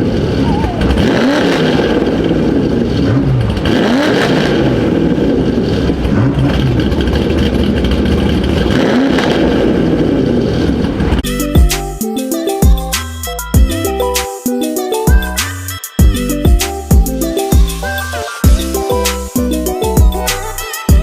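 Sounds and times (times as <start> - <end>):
vehicle engine revving: 0.0 - 11.2
music: 11.2 - 21.0.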